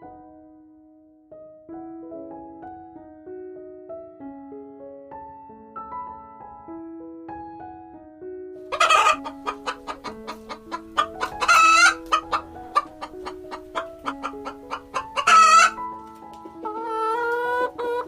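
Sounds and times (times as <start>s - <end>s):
soft piano music: 0.0s - 18.0s
chickens clucking: 8.7s - 18.0s.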